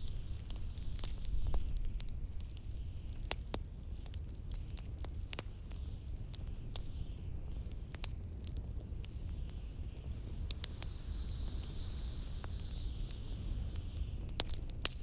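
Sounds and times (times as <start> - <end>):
wood fire crackling: 0.0 - 15.0
faint wind hiss: 9.0 - 15.0.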